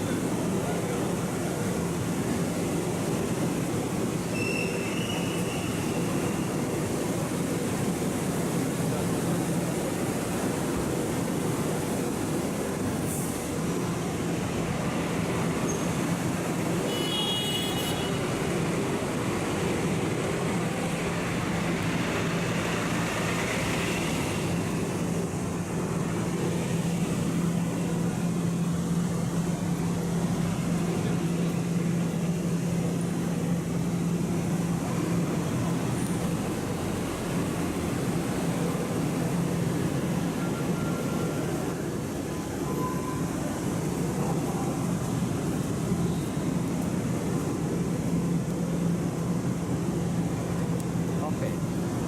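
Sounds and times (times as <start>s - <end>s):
road noise: 0.0s - 52.0s
vehicle engine drone: 18.3s - 52.0s
brief high tone: 42.6s - 43.4s.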